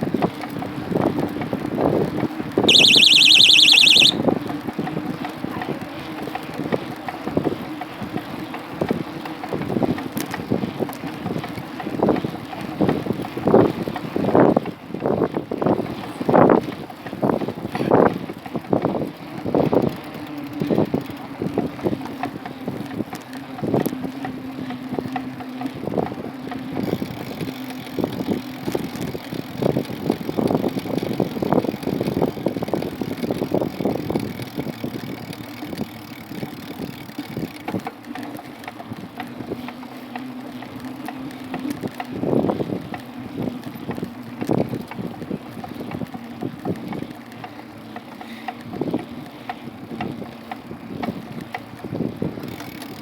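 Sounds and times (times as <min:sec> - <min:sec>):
wind buffeting microphone: 0:20.6 - 0:37.9, 0:41.4 - 0:47.4.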